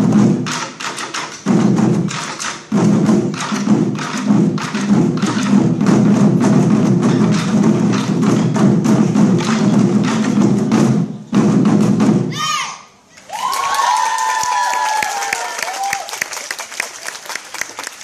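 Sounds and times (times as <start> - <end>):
war drums playing: 0.0 - 12.4.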